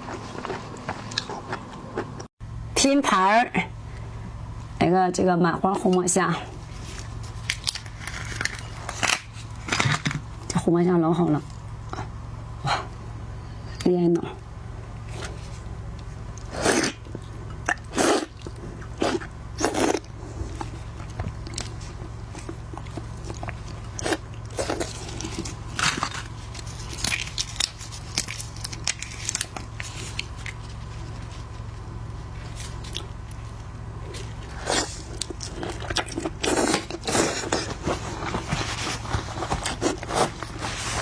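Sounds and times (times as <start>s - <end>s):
person chewing crunchy food: 0.0s - 2.3s, 15.0s - 41.0s
steady low hum: 0.0s - 41.0s.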